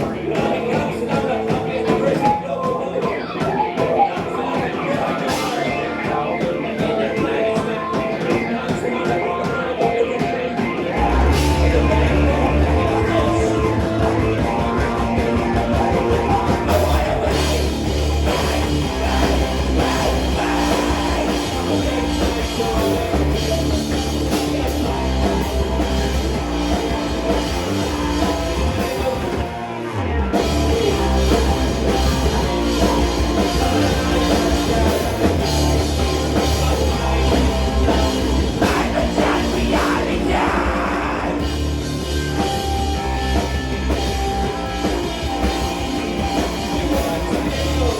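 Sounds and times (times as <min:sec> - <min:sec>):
live rock band playing: 0:00.0 - 0:47.9.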